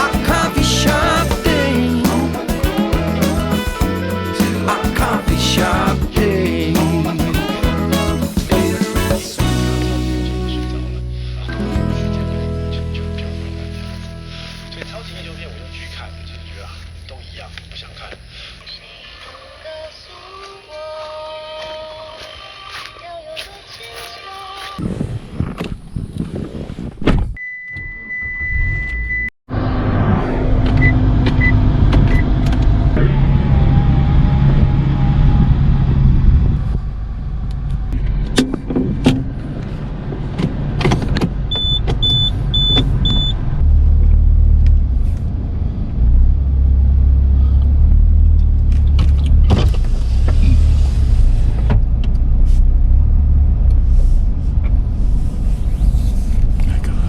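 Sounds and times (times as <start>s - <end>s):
car engine and road rumble: 9.5s - 20.0s, 29.5s - 57.0s
car beeping: 41.2s - 43.7s.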